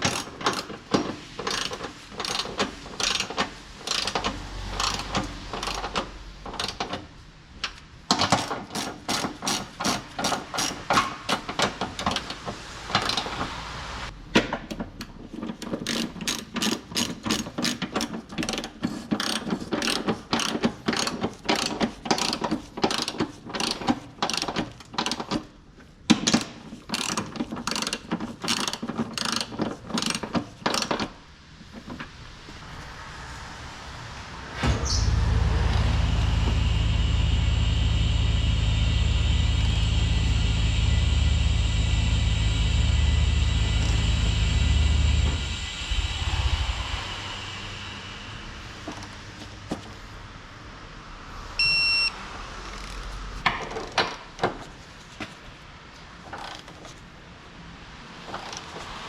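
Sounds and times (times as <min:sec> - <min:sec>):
ratchet wrench clicking: 0:00.0 - 0:00.7, 0:01.4 - 0:06.8, 0:15.8 - 0:25.2, 0:26.3 - 0:31.0.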